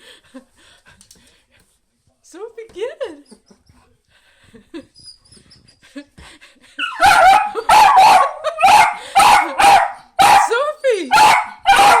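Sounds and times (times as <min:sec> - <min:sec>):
dog barking: 0:06.9 - 0:12.0.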